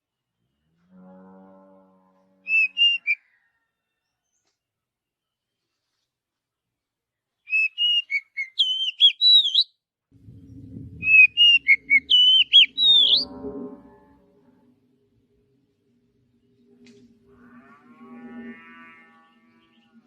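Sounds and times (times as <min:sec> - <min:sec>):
bird singing whistled notes: 0:02.5 - 0:03.2, 0:07.5 - 0:09.8, 0:10.5 - 0:13.4
low hum: 0:10.1 - 0:20.0.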